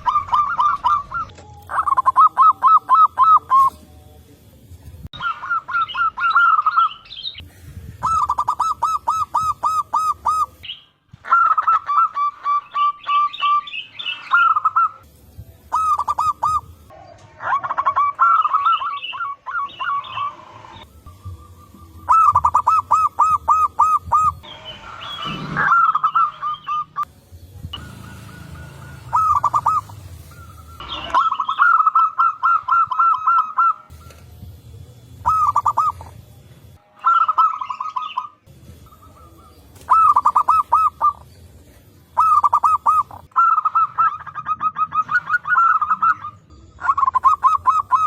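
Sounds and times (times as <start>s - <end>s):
doves cooing: 0.0s - 3.8s, 5.2s - 10.6s, 15.7s - 27.1s, 27.7s - 34.4s, 35.0s - 48.0s.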